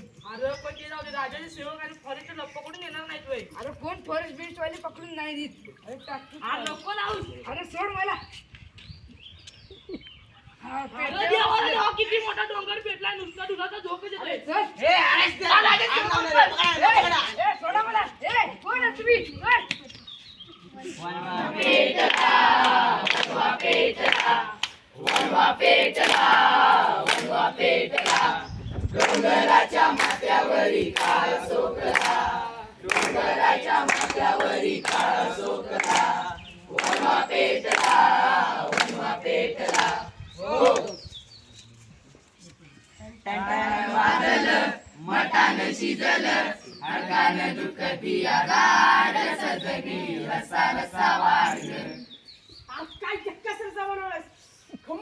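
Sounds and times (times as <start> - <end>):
group singing in unison: 21.0 - 41.0, 43.3 - 52.0.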